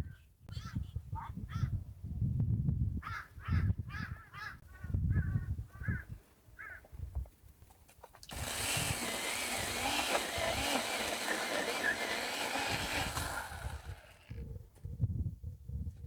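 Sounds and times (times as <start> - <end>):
wind rumble on microphone: 0.0 - 6.2, 13.0 - 16.0.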